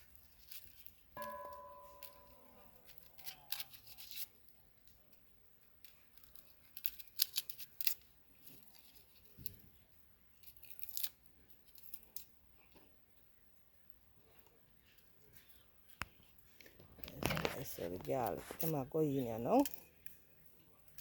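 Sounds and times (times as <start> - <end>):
garlic crackling in hands: 0.0 - 1.2, 5.8 - 9.7, 10.4 - 12.4.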